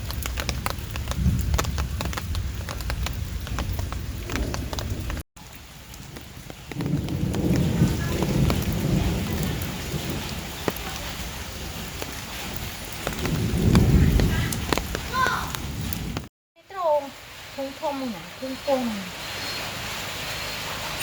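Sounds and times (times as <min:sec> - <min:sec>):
rolling thunder: 0:00.0 - 0:05.2, 0:06.6 - 0:16.3
heavy rain falling: 0:00.0 - 0:21.0
raindrops striking close by: 0:00.0 - 0:21.0.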